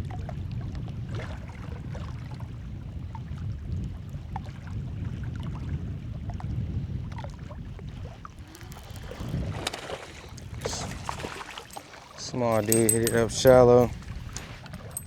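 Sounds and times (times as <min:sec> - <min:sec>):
wind buffeting microphone: 0:02.8 - 0:15.0
light clicks: 0:12.5 - 0:15.0.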